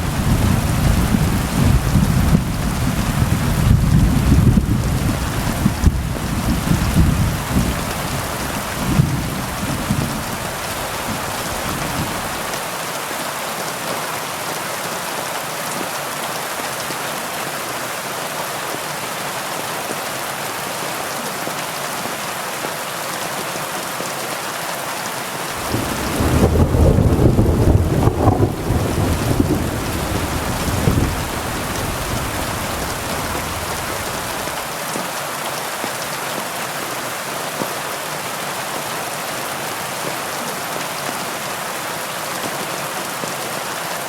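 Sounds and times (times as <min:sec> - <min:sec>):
thunder rumbling: 0:00.0 - 0:12.5, 0:25.6 - 0:34.6
heavy rain: 0:00.0 - 0:44.0.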